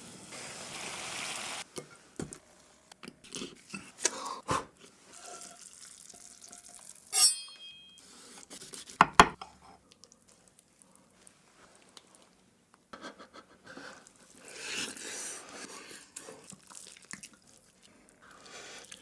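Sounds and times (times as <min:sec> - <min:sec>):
bright metallic clink: 0:07.1 - 0:08.0.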